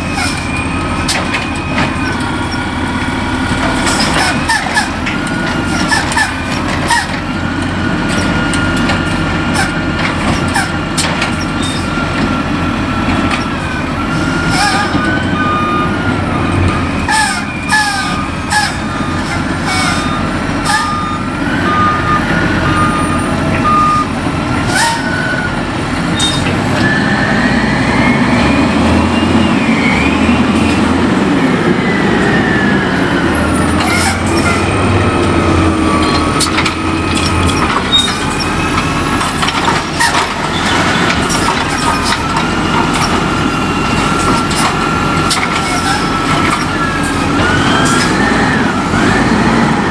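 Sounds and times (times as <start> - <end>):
diesel engine running: 0.0 - 49.9
hydraulic whine: 0.0 - 49.9
reversing beeps: 11.4 - 49.9.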